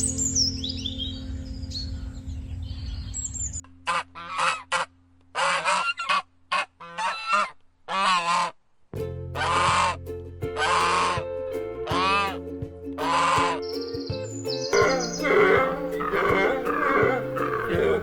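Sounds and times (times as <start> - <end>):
high bird chirps: 0.0 - 3.6, 13.2 - 18.0
goose honking: 3.8 - 8.5, 13.0 - 13.6, 14.7 - 18.0
background music: 9.0 - 18.0.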